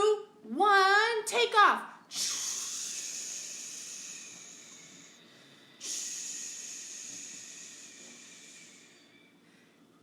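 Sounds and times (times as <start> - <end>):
person making hissing whoosh: 2.1 - 5.1, 5.8 - 8.9.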